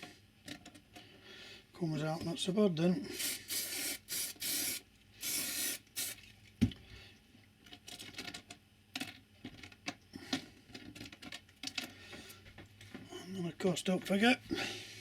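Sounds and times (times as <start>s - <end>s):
aerosol can spraying: 3.1s - 6.2s.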